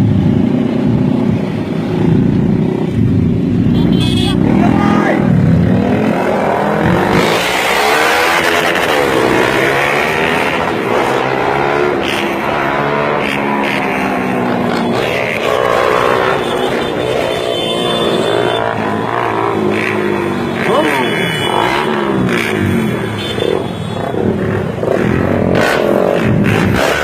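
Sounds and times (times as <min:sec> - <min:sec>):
motorcycle engines revving: 0:00.0 - 0:27.0.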